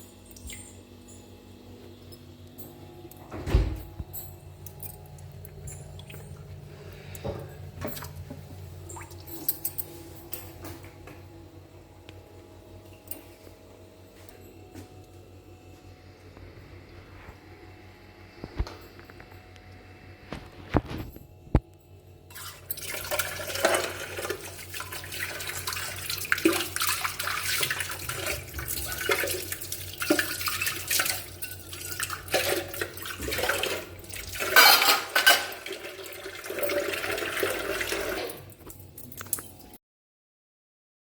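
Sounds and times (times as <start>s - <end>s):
utensils clattering: 22.3s - 39.8s
tap water running into sink: 22.4s - 38.4s.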